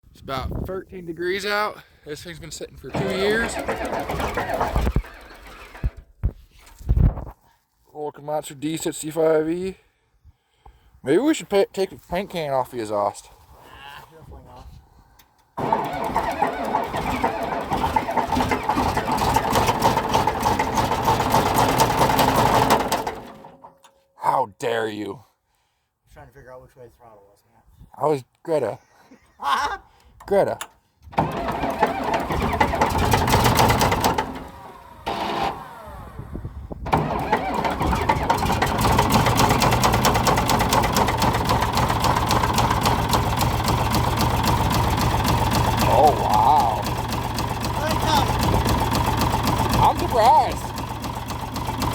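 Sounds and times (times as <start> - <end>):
diesel engine cranking on starter: 2.8 - 6.1, 15.6 - 23.8, 31.1 - 51.9.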